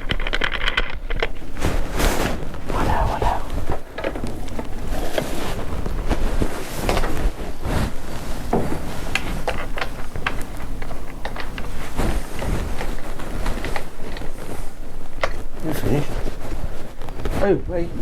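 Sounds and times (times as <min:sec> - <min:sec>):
steady low rumble: 0:02.5 - 0:09.0.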